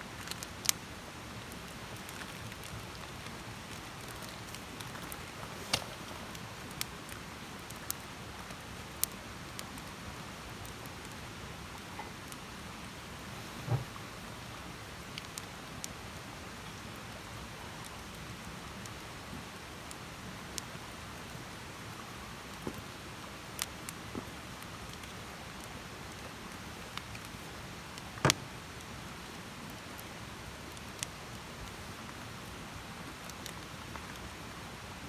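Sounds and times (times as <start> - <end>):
campfire hissing and crackling: 0.0 - 35.0
fire popping: 0.2 - 10.0, 22.4 - 30.0.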